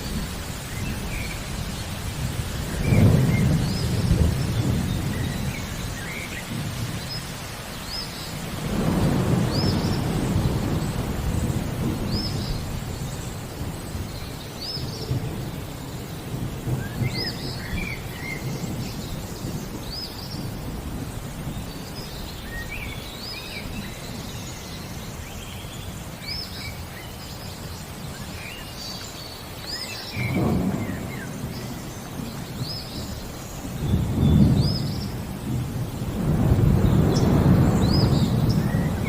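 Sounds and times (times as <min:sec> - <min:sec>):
thunder rumbling: 0:00.0 - 0:07.4, 0:08.1 - 0:22.6, 0:30.0 - 0:39.0
rain: 0:00.0 - 0:39.0
small birds chirping: 0:00.0 - 0:39.0.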